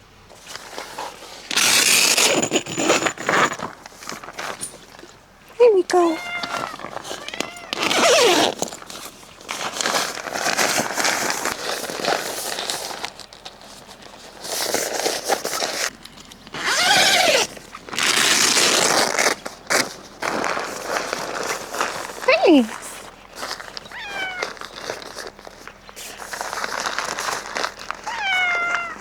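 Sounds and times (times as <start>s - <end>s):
material rustling and crinkling: 6.0s - 29.0s.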